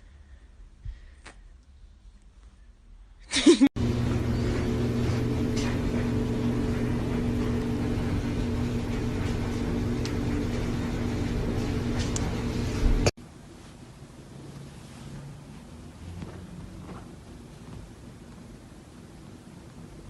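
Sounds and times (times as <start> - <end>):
engine humming: 3.8 - 13.1.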